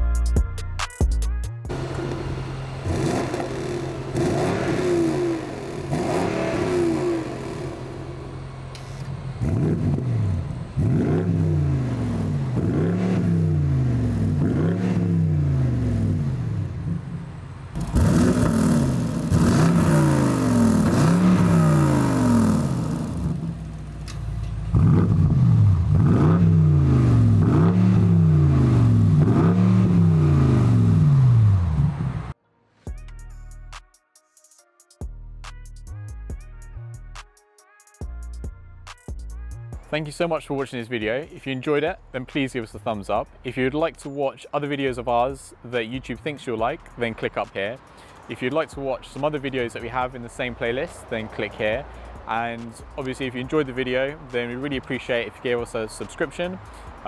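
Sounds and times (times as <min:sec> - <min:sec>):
car engine revving blips: 0:01.7 - 0:32.4.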